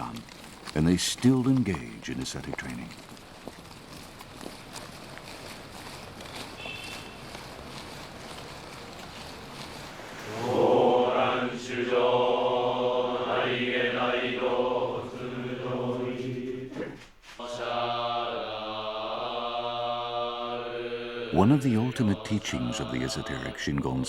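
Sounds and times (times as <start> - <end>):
monks chanting together: 9.9 - 24.0.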